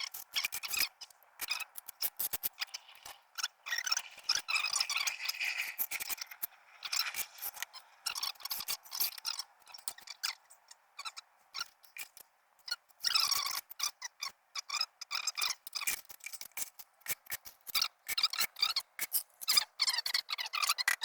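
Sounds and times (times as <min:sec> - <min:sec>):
tool scraping tile and mortar: 0:01.4 - 0:10.0.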